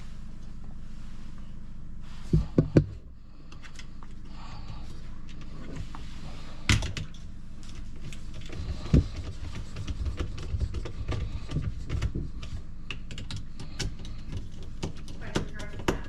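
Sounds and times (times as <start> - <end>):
steady low hum: 0.0 - 16.0
hands knocking plastic fittings: 8.3 - 16.0.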